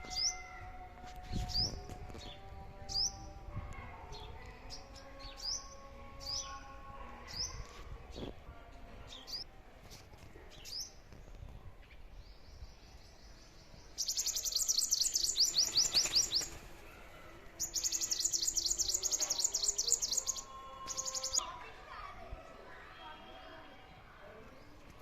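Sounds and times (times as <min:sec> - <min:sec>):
small bird chirping: 0:14.0 - 0:16.6, 0:17.6 - 0:21.4.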